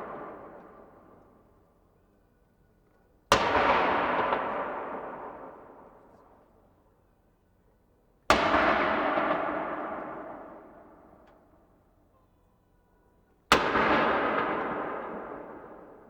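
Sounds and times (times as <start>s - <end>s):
cannon shots echoing: 13.5s - 16.0s.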